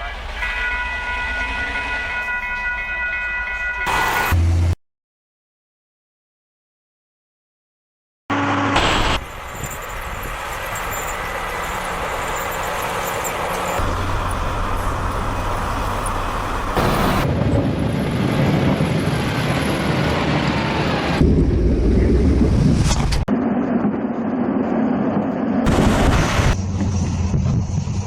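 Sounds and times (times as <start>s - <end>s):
road noise: 3.8s - 4.8s, 8.3s - 28.0s
vehicle engine hum: 8.3s - 28.0s.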